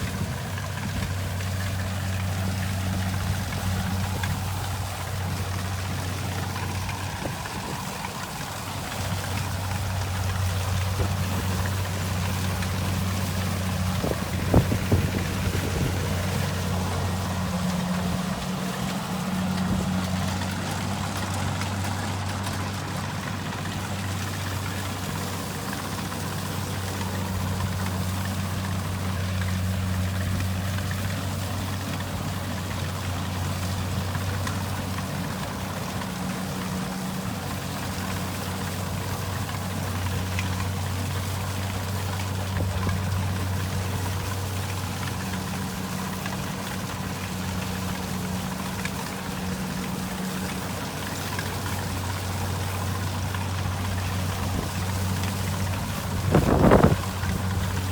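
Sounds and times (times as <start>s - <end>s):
diesel engine droning: 0.0s - 57.9s
rushing machine noise: 0.0s - 57.9s.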